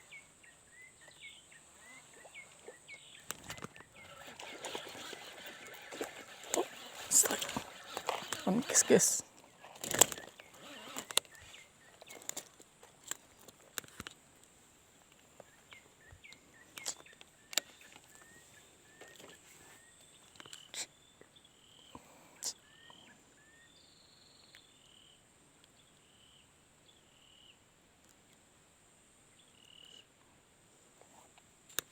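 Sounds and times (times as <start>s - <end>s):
bird chirping: 0.0s - 12.4s, 15.4s - 27.6s
high insect drone: 4.0s - 9.2s.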